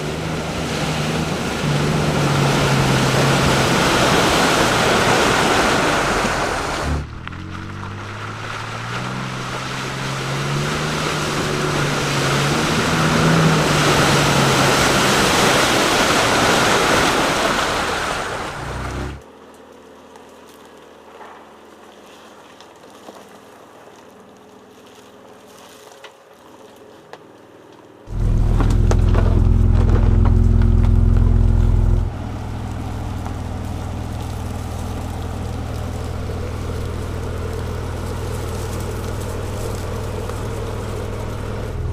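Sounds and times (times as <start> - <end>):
pickup truck engine: 0.0 - 19.3, 28.1 - 41.9
low engine drone: 0.0 - 19.6, 28.1 - 41.9
tyre and wind noise: 28.1 - 32.2.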